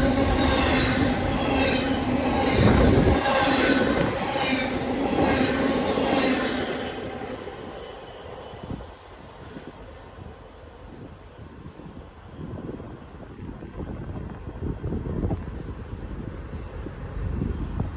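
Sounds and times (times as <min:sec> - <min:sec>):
train wheels squealing and clicking: 0:00.0 - 0:09.8, 0:15.4 - 0:17.9
train rumbling: 0:00.0 - 0:17.9.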